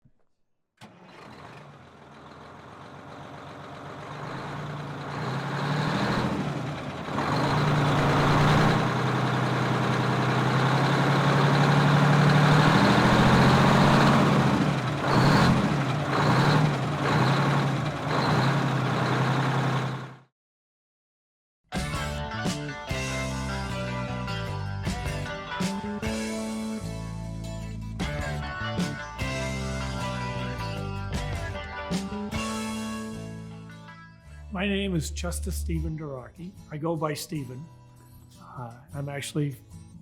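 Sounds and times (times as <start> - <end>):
heavy truck engine running: 0.8 - 20.3.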